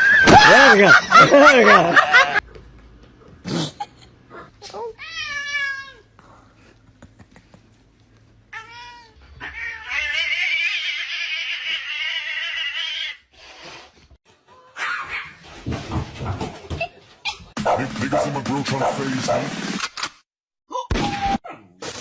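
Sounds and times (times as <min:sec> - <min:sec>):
cat yowling: 0:08.6 - 0:13.2.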